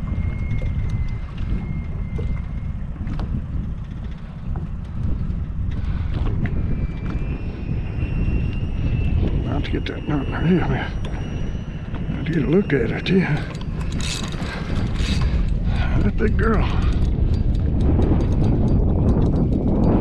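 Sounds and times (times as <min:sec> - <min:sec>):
thin high whistle: 0:00.0 - 0:02.7, 0:06.5 - 0:14.6
wind buffeting microphone: 0:00.0 - 0:20.0.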